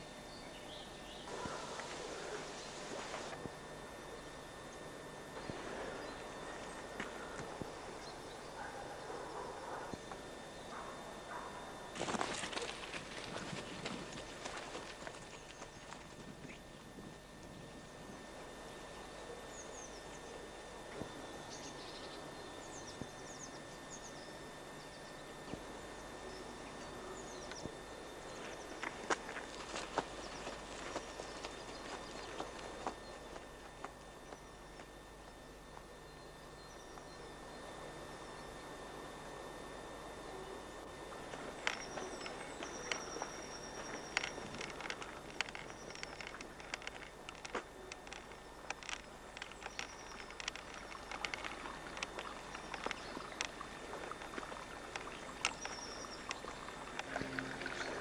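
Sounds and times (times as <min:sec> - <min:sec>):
small birds chirping: 0:00.0 - 0:03.3, 0:21.4 - 0:35.3, 0:40.4 - 0:58.0
steady background hiss: 0:00.0 - 0:58.0
footsteps on dry forest path: 0:10.7 - 0:16.2, 0:28.3 - 0:34.9, 0:41.3 - 0:46.6.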